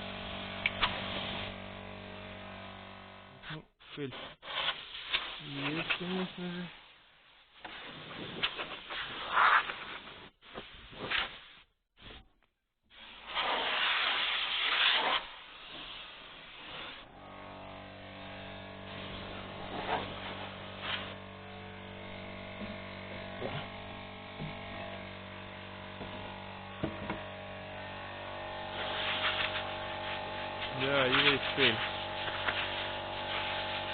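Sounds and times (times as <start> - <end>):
mechanical hum: 0.0 - 3.6, 16.3 - 33.9.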